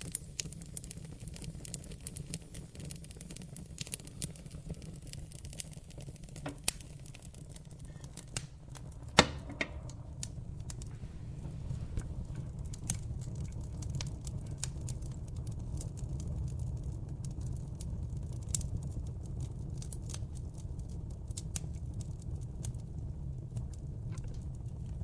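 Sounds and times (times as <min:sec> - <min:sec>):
fire pops and snaps: 0:00.0 - 0:25.0
low rumble of flames: 0:00.0 - 0:25.0
wood fire crackling: 0:00.0 - 0:25.0.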